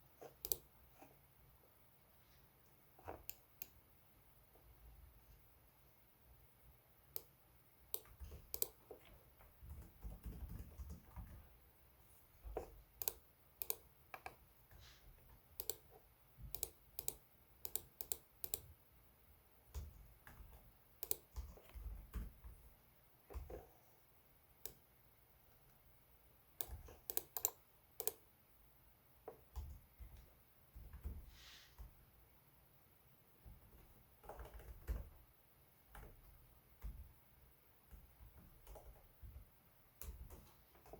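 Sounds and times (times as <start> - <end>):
laptop keyboard typing: 7.9 - 11.6, 12.4 - 18.7, 19.7 - 22.6, 26.6 - 28.2, 33.4 - 35.2, 37.8 - 40.9.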